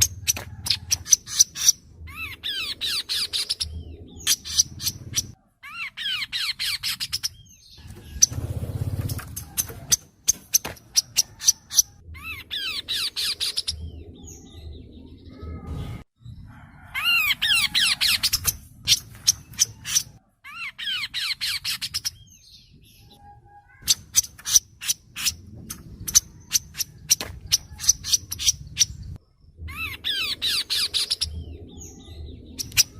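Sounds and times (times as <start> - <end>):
bird singing clicks and trills: 0.0 - 5.4, 23.0 - 29.2, 30.0 - 32.9
low background rumble: 0.0 - 5.4, 7.3 - 16.6, 22.0 - 32.9.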